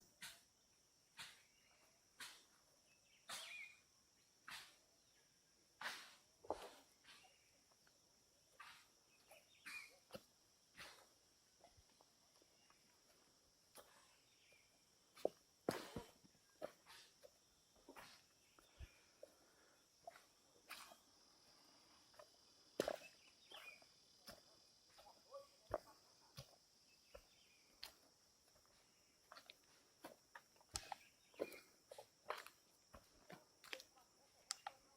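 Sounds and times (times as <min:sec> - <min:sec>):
bird chirps: 0:01.2 - 0:03.9, 0:08.5 - 0:10.2, 0:20.1 - 0:29.6, 0:30.6 - 0:32.5
footsteps on forest floor: 0:06.0 - 0:07.3, 0:08.6 - 0:34.9.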